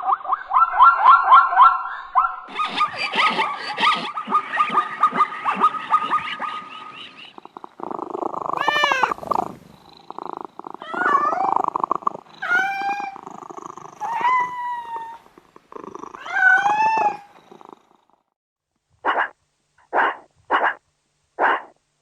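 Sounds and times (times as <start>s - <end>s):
cat meowing and yowling: 8.6s - 9.4s, 10.8s - 13.3s, 13.9s - 15.3s, 16.2s - 17.3s.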